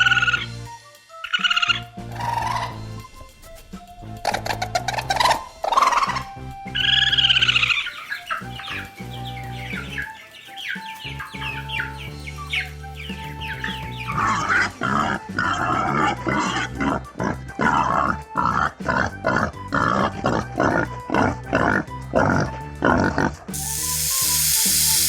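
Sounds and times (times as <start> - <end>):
background music: 0.0 - 25.0
small birds chirping: 1.2 - 16.8, 23.5 - 25.0
pigs grunting and squealing: 13.8 - 24.8.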